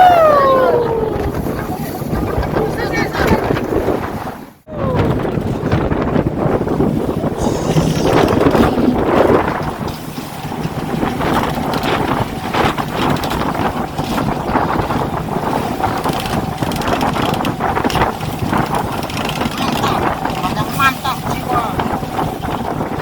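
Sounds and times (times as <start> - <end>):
wind noise on microphone: 0.0 - 23.0
boat engine running: 0.9 - 23.0
knocks and water splashes: 5.2 - 23.0.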